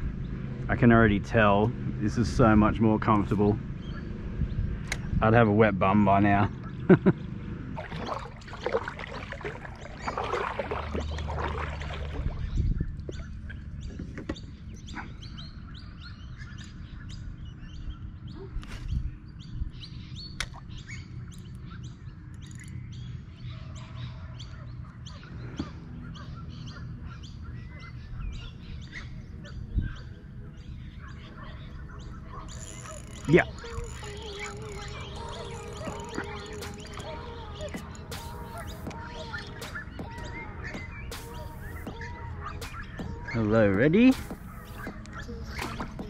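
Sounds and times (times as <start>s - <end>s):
low steady rumble: 0.0s - 13.9s
small birds chirping: 0.0s - 46.0s.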